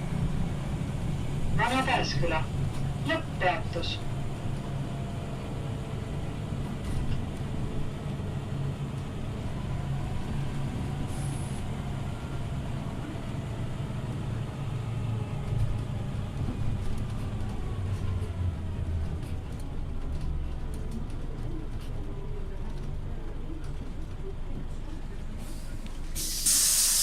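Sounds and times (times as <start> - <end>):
bus engine droning: 0.0 - 27.0
short high hiss: 26.2 - 27.0.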